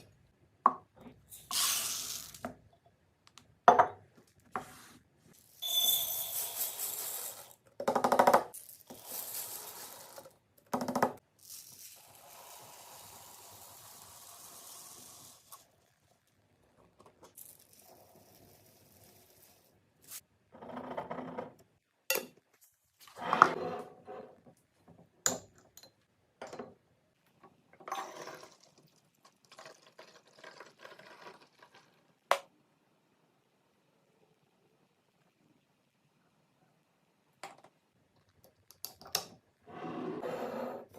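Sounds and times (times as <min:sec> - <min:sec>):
faint steady hiss: 0:31.4 - 0:40.2.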